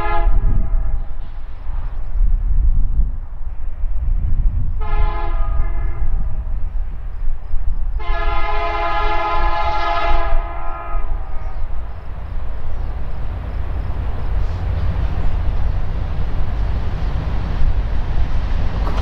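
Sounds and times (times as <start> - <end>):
locomotive air horn chord: 0.0 - 1.0, 4.8 - 6.1, 8.0 - 11.4
locomotives rumbling: 11.0 - 19.0.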